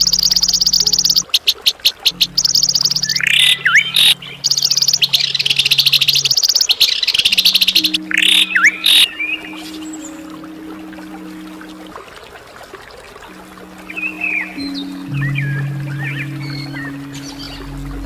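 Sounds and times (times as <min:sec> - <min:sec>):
songbird trilling and whistling: 0:00.0 - 0:10.2.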